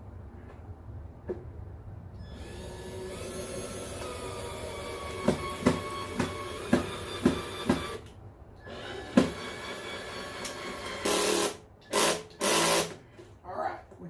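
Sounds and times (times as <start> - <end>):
power drill driving screws: 2.2 - 13.0.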